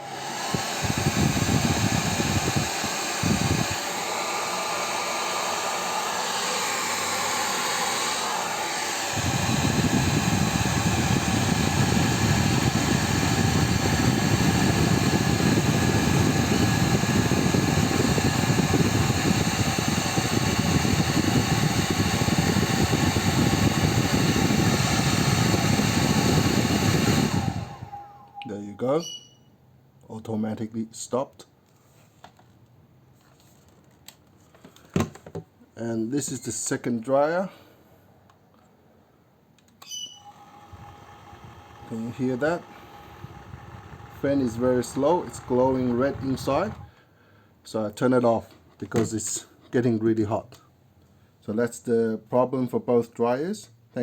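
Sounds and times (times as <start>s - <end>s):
hair dryer blowing whir: 0.0s - 28.5s, 40.2s - 47.0s.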